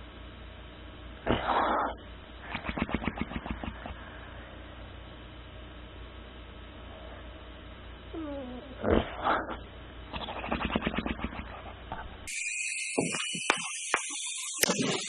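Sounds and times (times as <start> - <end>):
pet animal whining: 8.1 - 12.1
steady high tone: 12.3 - 15.0.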